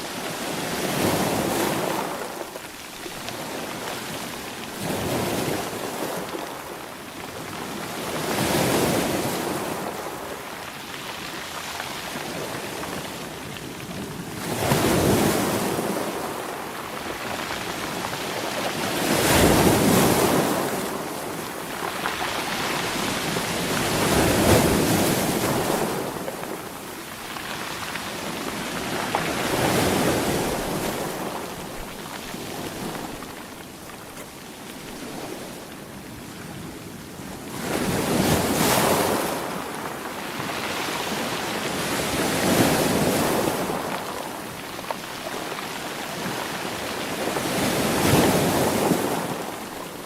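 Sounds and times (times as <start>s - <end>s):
sea waves breaking: 14.4s - 36.7s.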